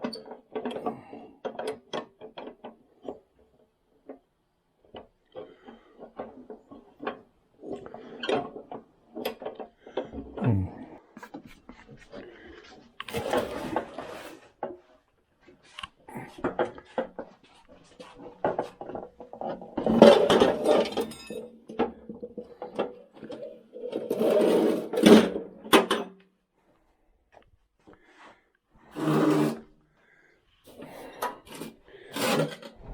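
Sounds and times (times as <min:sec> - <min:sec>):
metal scraping and rubbing: 0:29.0 - 0:29.7.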